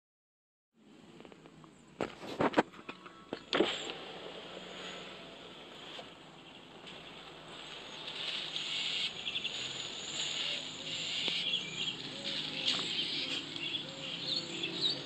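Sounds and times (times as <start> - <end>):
birds chirping: 2.7 - 15.0
hissing bird chorus: 3.0 - 15.0
low bird call in pairs: 7.8 - 15.0.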